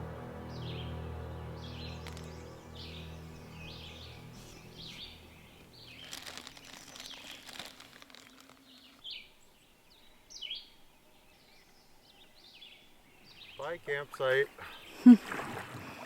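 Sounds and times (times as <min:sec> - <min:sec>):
birds chirping: 0:00.0 - 0:15.2
crackling rustle: 0:01.8 - 0:09.2.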